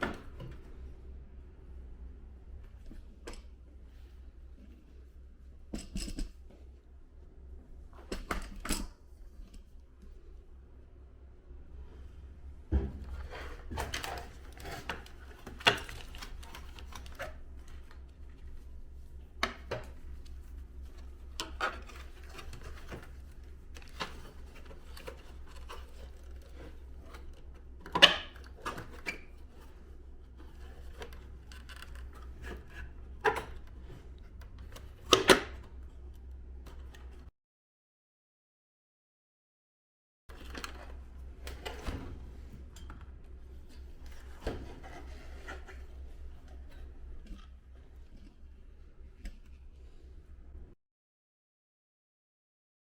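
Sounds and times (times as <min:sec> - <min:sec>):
low steady hum: 0:00.0 - 0:37.3
plastic parts clicking and knocking: 0:13.7 - 0:18.0.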